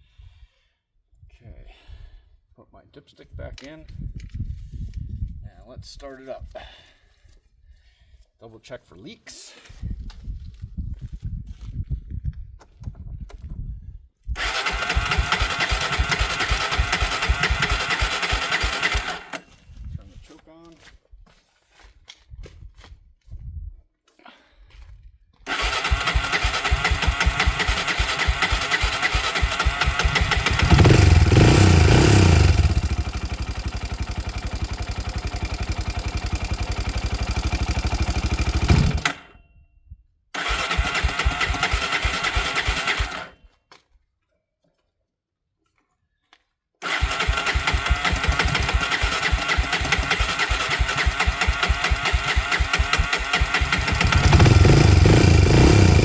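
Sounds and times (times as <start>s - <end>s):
four-stroke engine running: 14.4s - 19.4s, 25.5s - 39.3s, 40.4s - 43.3s, 46.8s - 56.0s.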